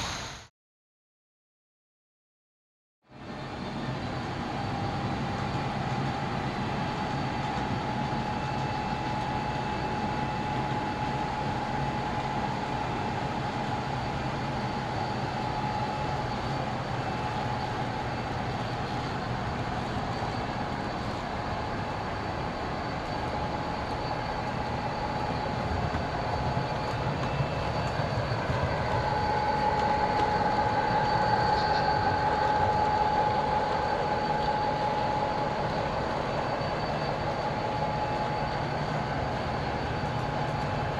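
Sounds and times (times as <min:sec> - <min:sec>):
motor whine: 0:07.1 - 0:40.9
model train wheels rumbling: 0:17.4 - 0:37.9.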